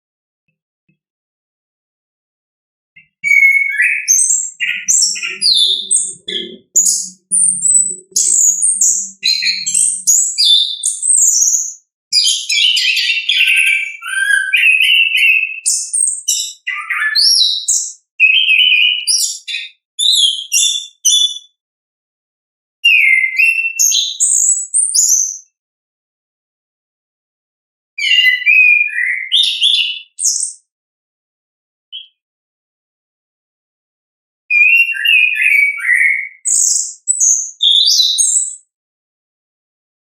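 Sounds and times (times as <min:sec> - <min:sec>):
thrush singing whistled trills: 0:03.0 - 0:21.5, 0:22.9 - 0:25.5, 0:28.0 - 0:30.6, 0:34.5 - 0:38.6.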